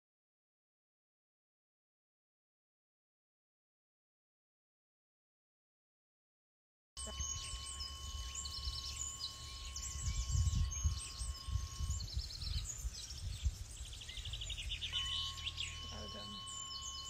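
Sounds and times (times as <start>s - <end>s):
faint high tone: 7.0s - 12.8s, 15.0s - 17.0s
birds chirping and singing: 7.0s - 17.0s
wind rumble on microphone: 7.1s - 17.0s.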